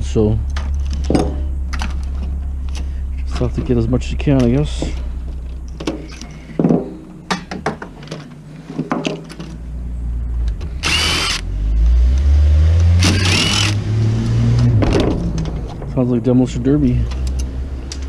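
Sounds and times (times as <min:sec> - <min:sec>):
clicks and knocks of parts handled: 0:00.4 - 0:03.7, 0:04.4 - 0:09.6, 0:14.2 - 0:15.9, 0:17.0 - 0:18.0
rough car engine revving: 0:10.3 - 0:18.0.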